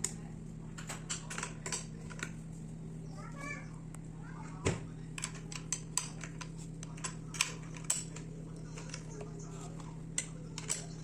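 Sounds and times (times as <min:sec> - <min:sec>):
steady low hum: 0:00.0 - 0:11.0
metal tools clicking and clinking: 0:10.2 - 0:11.0.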